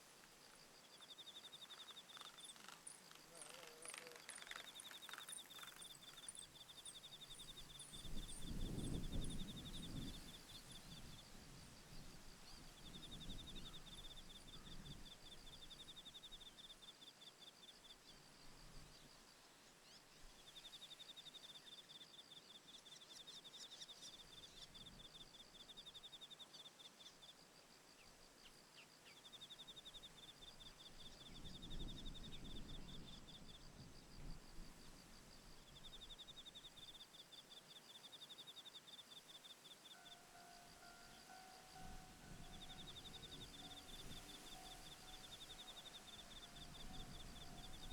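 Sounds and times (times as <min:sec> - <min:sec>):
insect trilling: 0:01.5 - 0:08.4, 0:40.0 - 0:47.9
wind rumbling on microphone: 0:07.4 - 0:15.7, 0:30.8 - 0:36.0, 0:41.8 - 0:47.9.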